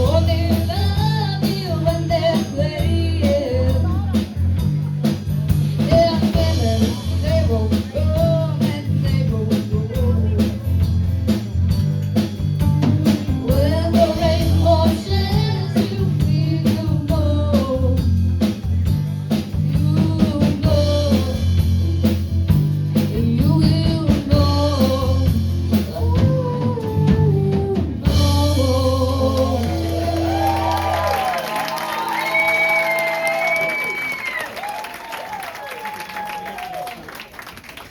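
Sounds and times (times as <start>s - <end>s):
person singing: 0.0s - 4.5s, 5.8s - 10.8s, 12.8s - 18.3s, 19.6s - 22.2s, 23.0s - 31.4s
electric guitar: 0.0s - 34.4s
bass guitar: 0.0s - 34.8s
drum kit: 0.0s - 35.4s.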